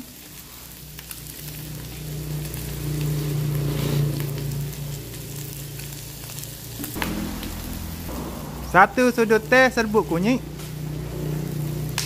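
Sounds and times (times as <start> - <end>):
meat sizzling in a wok: 0.0 - 12.0
low hum: 0.7 - 12.0.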